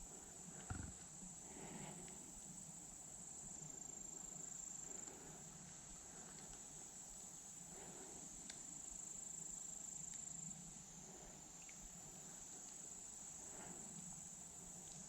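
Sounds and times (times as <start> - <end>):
insects trilling: 0.1 - 14.8
small ticks: 5.0 - 9.1, 10.0 - 10.6, 11.6 - 15.0.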